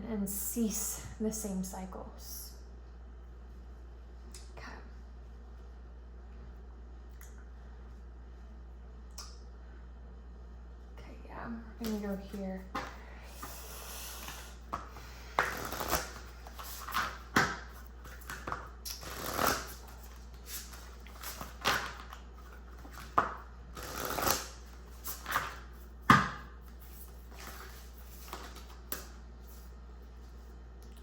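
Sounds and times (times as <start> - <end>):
cards being shuffled: 15.4 - 25.8, 26.7 - 30.4.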